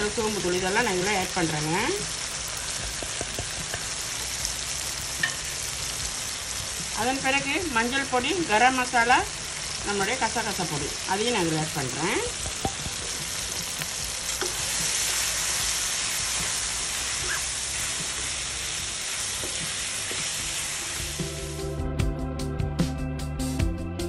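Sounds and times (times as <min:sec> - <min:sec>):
vegetables sizzling in hot oil: 0:00.0 - 0:21.6
background music with a beat: 0:02.6 - 0:07.0, 0:19.3 - 0:24.0.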